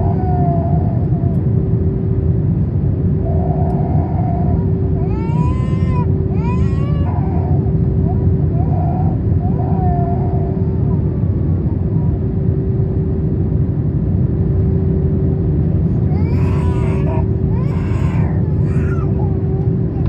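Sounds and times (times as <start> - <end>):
small child crying: 0.0 - 1.4, 3.5 - 12.0, 16.0 - 20.0
airliner cabin engine roar: 0.0 - 20.0.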